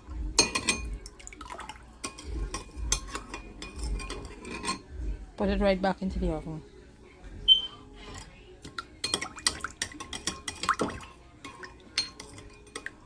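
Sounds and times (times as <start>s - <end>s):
metal pan clattering on oven rack: 0.4s - 1.0s, 2.0s - 4.9s.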